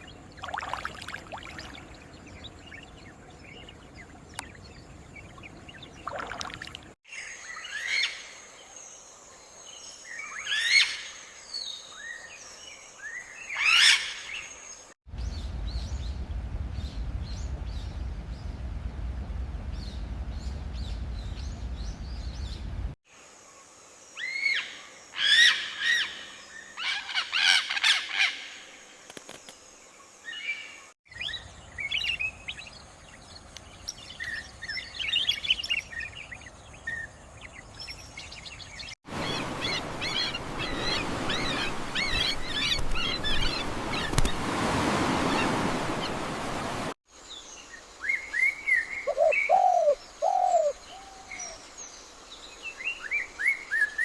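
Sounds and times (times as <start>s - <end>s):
birds calling and chirping: 0.0s - 8.4s, 30.3s - 54.0s
steady low rumble: 15.1s - 23.0s.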